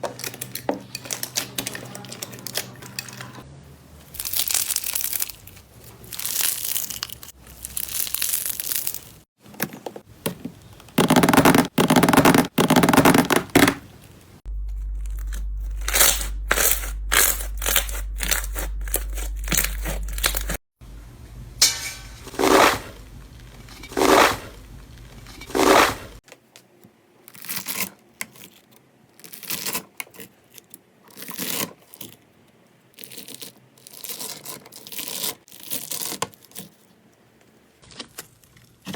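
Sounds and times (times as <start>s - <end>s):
slime crackling and tearing: 4.1s - 9.3s, 14.6s - 20.6s, 32.9s - 36.8s.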